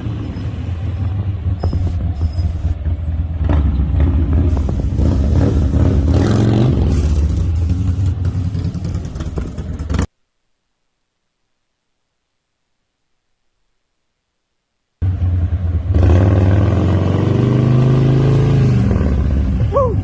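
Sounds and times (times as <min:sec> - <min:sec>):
motorcycle engine revving: 0:00.0 - 0:10.1, 0:15.0 - 0:20.0.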